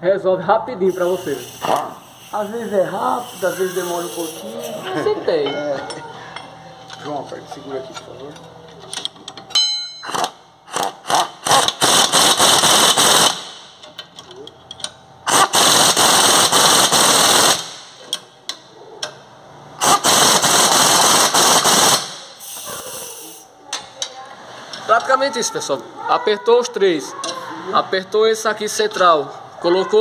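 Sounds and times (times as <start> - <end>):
impact wrench rattling: 8.9 - 13.5.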